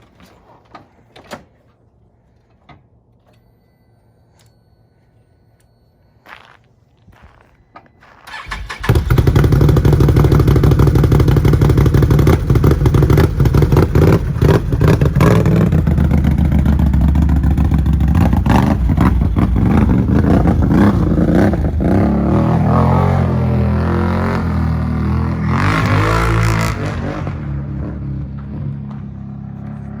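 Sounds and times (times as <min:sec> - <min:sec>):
engine cranking: 0:08.2 - 0:26.0
engine idling: 0:08.3 - 0:22.5.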